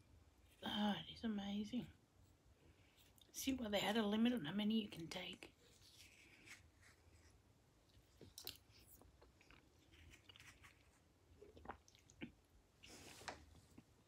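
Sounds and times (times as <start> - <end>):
chewing and wet mouth sounds: 7.8 - 13.0.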